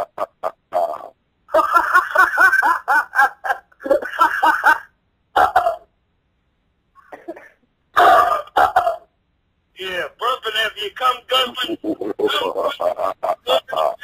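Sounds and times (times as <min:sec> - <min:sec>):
person laughing: 0:11.5 - 0:14.0.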